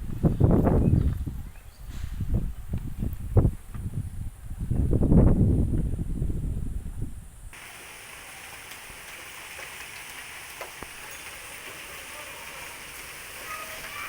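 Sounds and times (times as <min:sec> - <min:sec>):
steady rain hiss: 0:07.4 - 0:14.0.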